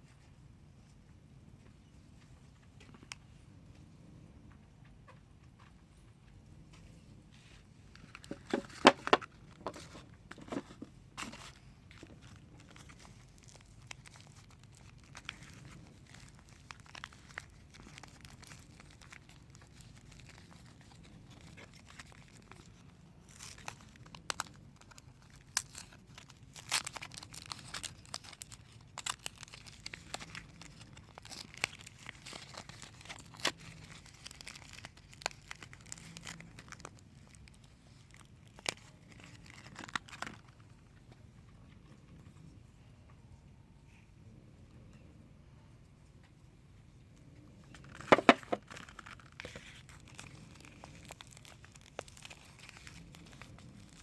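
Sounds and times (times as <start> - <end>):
wrappers crinkling and tearing: 7.9 - 40.8, 47.7 - 54.0.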